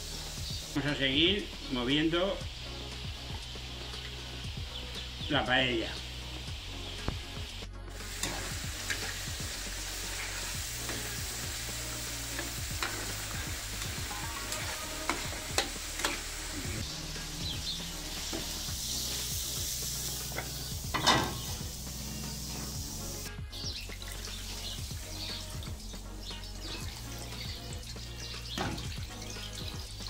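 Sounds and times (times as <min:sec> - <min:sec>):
seafood sizzling in sauce: 0:00.0 - 0:30.0
metal spoon scraping a pan: 0:08.0 - 0:16.5, 0:20.3 - 0:21.5.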